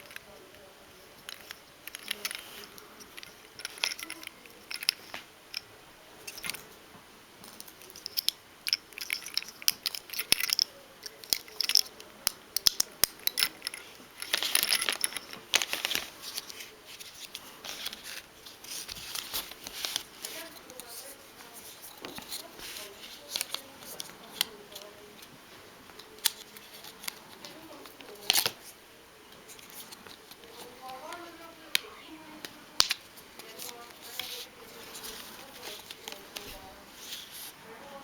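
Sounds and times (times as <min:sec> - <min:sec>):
plastic toy pieces clicking: 0:01.2 - 0:05.7, 0:07.6 - 0:16.6.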